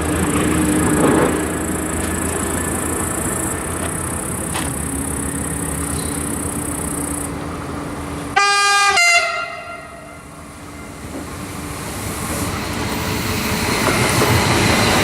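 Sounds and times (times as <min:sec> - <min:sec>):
train rail running noise: 0:00.0 - 0:15.0
two-note train horn: 0:08.4 - 0:11.0.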